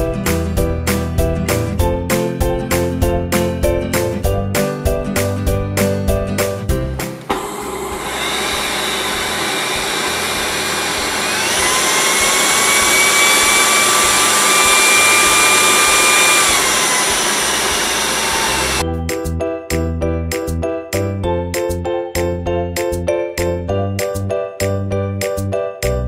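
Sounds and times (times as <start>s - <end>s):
music: 0.0s - 7.6s, 18.3s - 26.0s
stick vacuum running: 7.2s - 18.8s.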